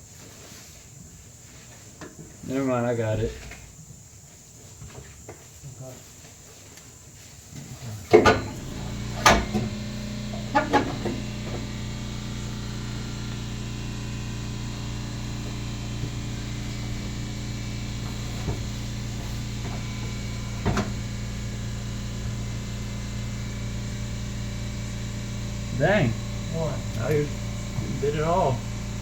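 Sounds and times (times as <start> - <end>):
low machine hum: 8.2 - 29.0.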